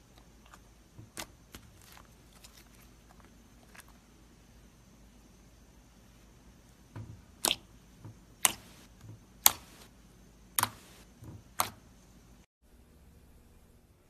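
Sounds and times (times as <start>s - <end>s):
slime squishes: 7.3s - 7.7s, 8.4s - 9.9s, 10.6s - 11.8s.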